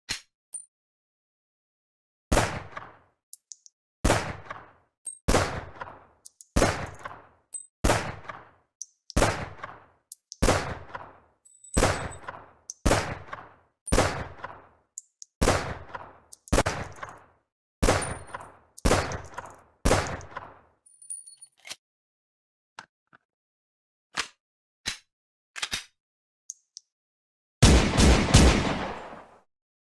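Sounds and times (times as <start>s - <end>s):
gunshots with echo: 2.3s - 3.1s, 4.0s - 8.6s, 9.2s - 14.8s, 15.4s - 20.7s, 27.6s - 29.4s.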